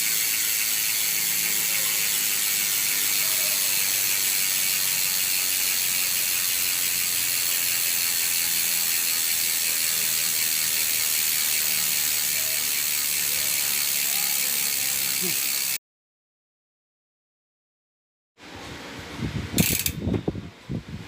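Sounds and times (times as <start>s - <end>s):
bicycle hub ratcheting buzz: 0.0s - 15.8s, 19.6s - 20.1s.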